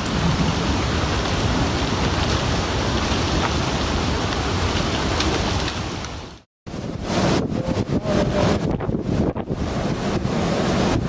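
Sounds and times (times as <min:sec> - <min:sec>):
floodwater rushing: 0:00.0 - 0:06.4.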